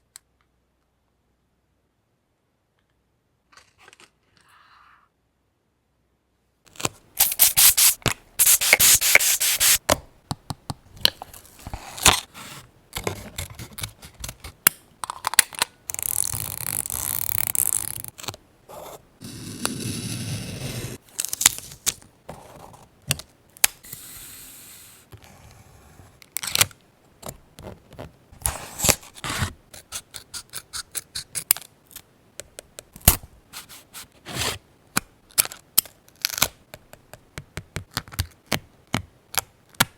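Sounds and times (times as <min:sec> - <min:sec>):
paper rubbing and scraping: 0:07.2 - 0:09.8.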